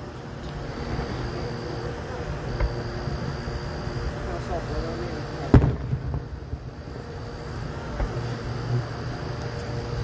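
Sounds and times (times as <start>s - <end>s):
steady low hum: 0.0s - 10.0s
firework bang: 5.4s - 6.7s
small firework pops: 5.5s - 6.2s, 7.9s - 8.2s.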